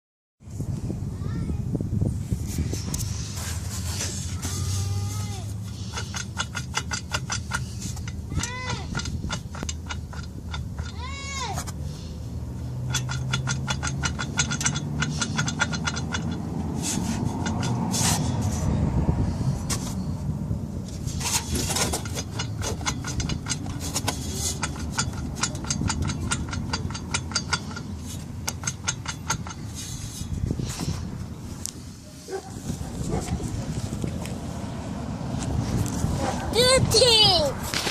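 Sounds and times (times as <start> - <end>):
low engine-like hum: 0.5 - 37.8
rapid mechanical clicking rattle: 5.7 - 11.0, 12.8 - 17.8, 21.2 - 29.8.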